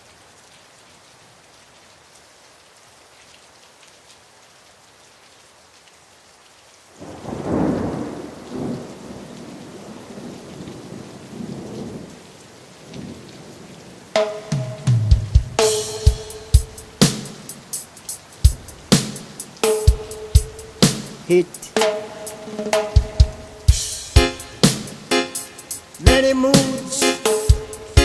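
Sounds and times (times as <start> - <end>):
steady rain: 0.0 - 28.0
loud thunderclap: 7.0 - 12.1
rolling thunder rumbles: 7.0 - 12.2, 20.4 - 25.0.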